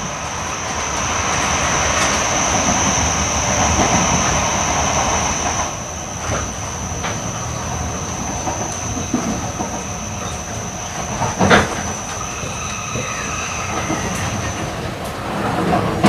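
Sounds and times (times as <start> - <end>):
train rolling rumble: 0.0 - 16.0
thin high whine: 0.2 - 15.1
faint high squealing: 6.4 - 14.9.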